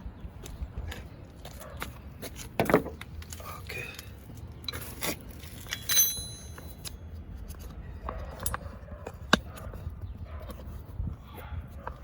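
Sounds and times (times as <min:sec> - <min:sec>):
metal hand tools clinking: 0:05.6 - 0:06.9.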